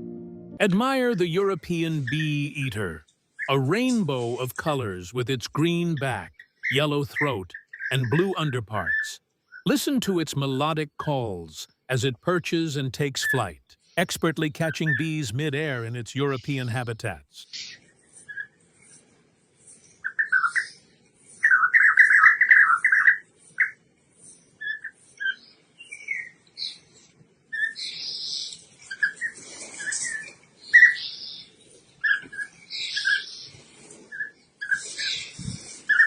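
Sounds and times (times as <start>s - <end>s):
birds calling: 5.6s - 10.0s, 27.6s - 36.0s.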